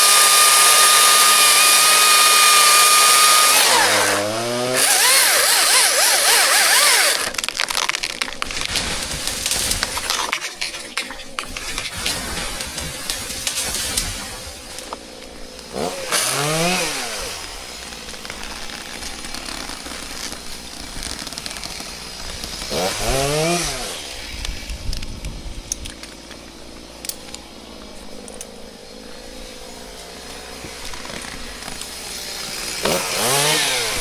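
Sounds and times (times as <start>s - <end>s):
chainsaw revving: 0.0s - 10.1s, 11.8s - 24.6s, 29.2s - 34.0s.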